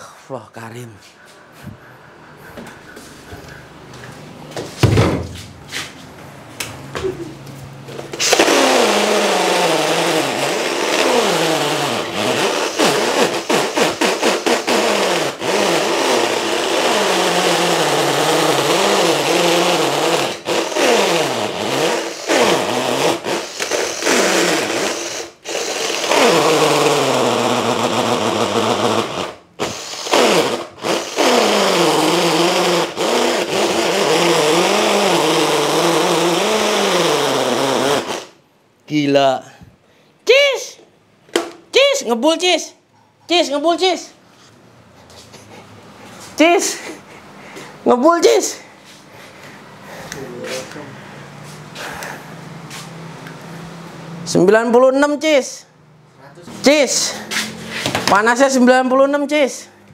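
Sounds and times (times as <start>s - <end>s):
impact drill boring into concrete: 8.1s - 38.4s.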